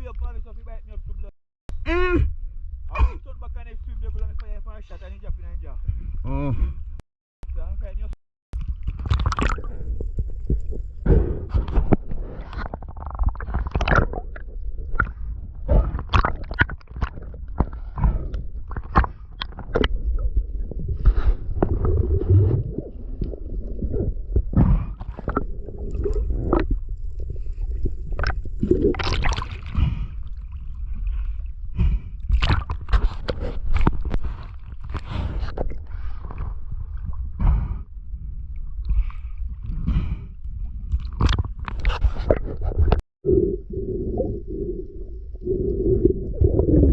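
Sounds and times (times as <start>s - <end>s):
low rumble: 1.7s - 46.9s
muffled underwater sloshing: 8.6s - 46.9s
knocks and splashes: 11.5s - 26.8s, 28.2s - 29.8s, 32.3s - 37.1s.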